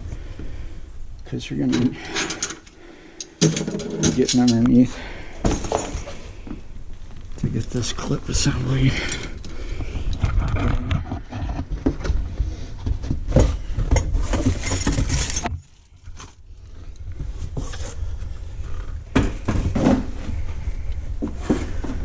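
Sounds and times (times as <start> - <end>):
metal parts clinking and scraping: 1.7 - 6.2, 14.2 - 16.3.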